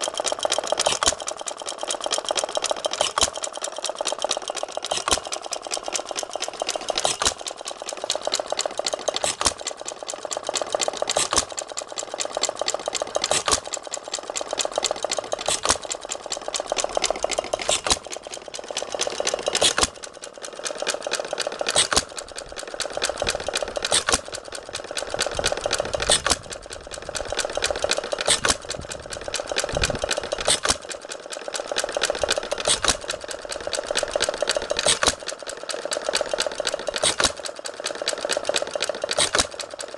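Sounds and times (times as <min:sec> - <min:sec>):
engine clattering while coasting: 0:00.0 - 0:39.9.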